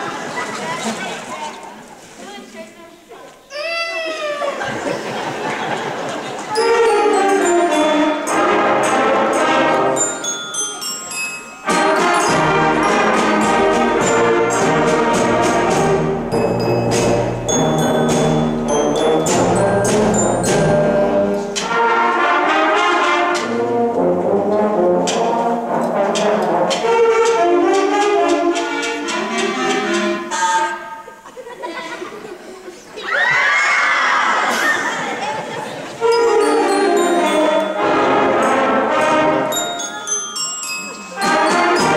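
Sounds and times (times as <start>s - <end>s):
concert band playing brass music: 6.5s - 10.3s, 11.6s - 30.8s, 36.0s - 39.9s, 41.1s - 41.9s.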